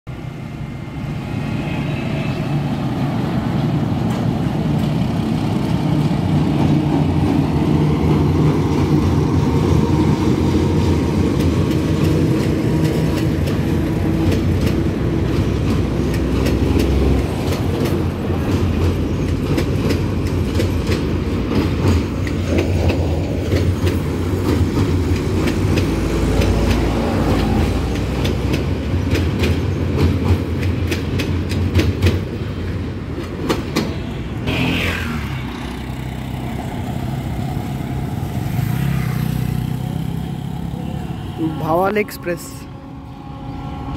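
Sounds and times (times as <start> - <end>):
train rumbling over bridge: 0.1 - 43.9
clickety-clack of wheels: 3.5 - 34.4.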